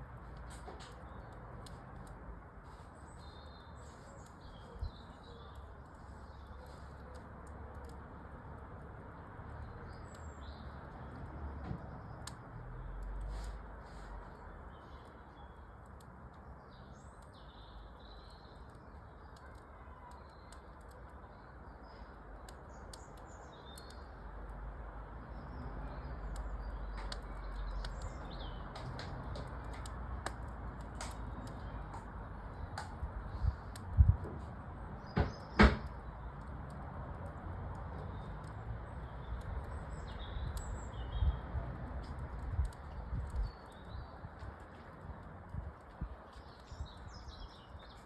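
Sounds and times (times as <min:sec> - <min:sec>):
wood fire crackling: 0:00.0 - 0:48.0
birds chirping: 0:02.7 - 0:08.1, 0:14.3 - 0:24.3, 0:25.2 - 0:33.8, 0:37.9 - 0:45.0, 0:45.7 - 0:48.0
loud knocks: 0:35.2 - 0:35.9.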